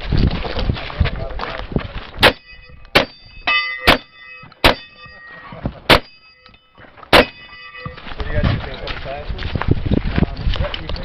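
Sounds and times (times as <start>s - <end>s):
shotgun shots: 2.2s - 3.2s, 3.8s - 5.0s, 5.9s - 6.2s, 7.1s - 7.5s
steel target ringing: 2.2s - 8.2s.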